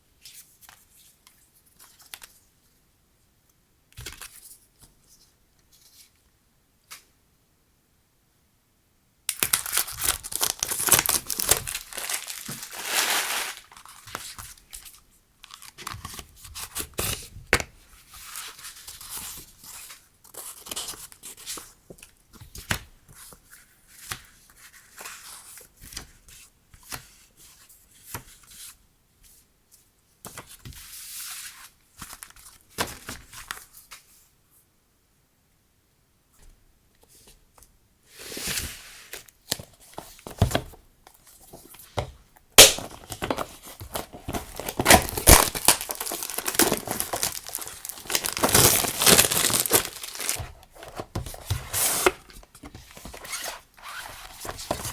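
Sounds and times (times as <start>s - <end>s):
packaging tearing and crinkling: 9.4s - 14.0s, 42.6s - 52.2s.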